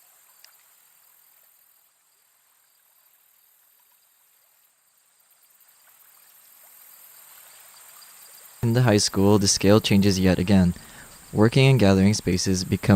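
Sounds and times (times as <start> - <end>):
insects chirping: 0.0 - 12.9.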